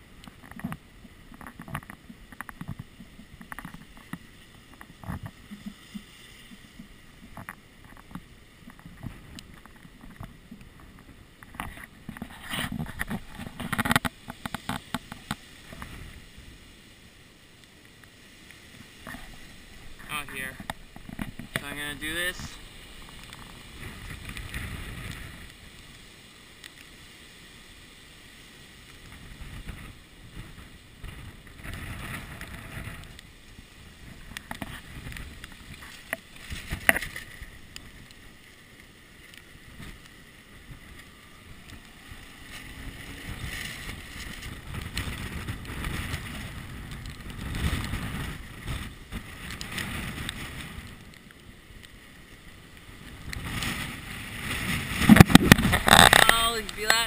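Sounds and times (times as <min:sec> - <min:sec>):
gusty wind buffeting camera: 0:00.6 - 0:16.5, 0:19.0 - 0:25.6, 0:29.0 - 0:38.2, 0:39.7 - 0:51.2, 0:52.9 - 0:57.0.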